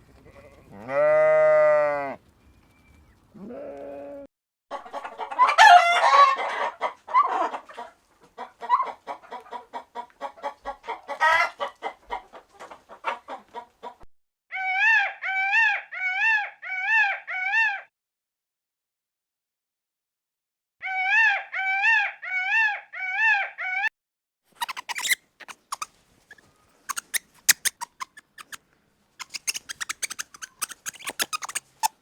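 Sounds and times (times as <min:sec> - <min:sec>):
chickens clucking: 0:04.7 - 0:14.0, 0:24.6 - 0:28.6, 0:29.2 - 0:32.0
rooster crowing: 0:05.4 - 0:06.6
rising and falling calls: 0:24.6 - 0:25.9, 0:26.9 - 0:28.6, 0:29.2 - 0:32.0.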